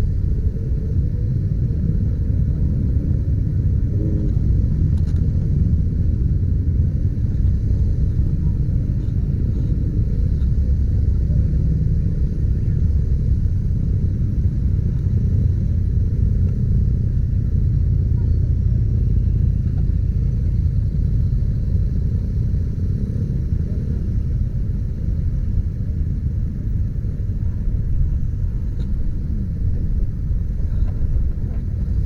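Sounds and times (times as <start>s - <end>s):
motorcycle engine rumble: 0.0s - 32.0s
road noise: 0.0s - 32.0s
wind buffeting microphone: 0.0s - 32.0s.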